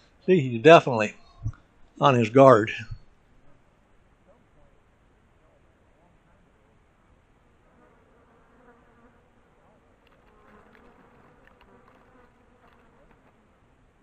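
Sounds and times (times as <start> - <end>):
fly buzzing: 7.7 - 9.4, 10.0 - 13.5.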